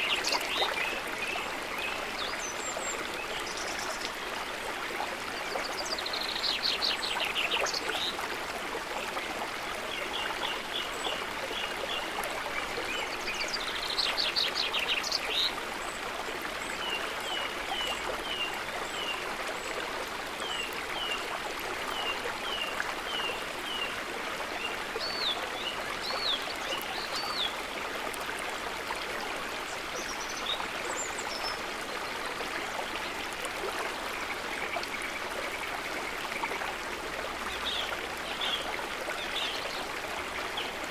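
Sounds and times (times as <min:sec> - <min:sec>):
river water running: 0:00.0 - 0:40.9.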